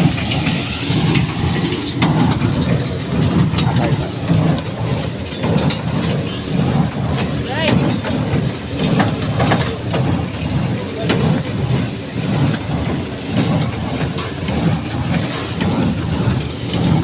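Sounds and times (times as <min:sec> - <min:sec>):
baler mechanical clatter: 0:00.0 - 0:17.0
tractor engine running: 0:00.0 - 0:17.0.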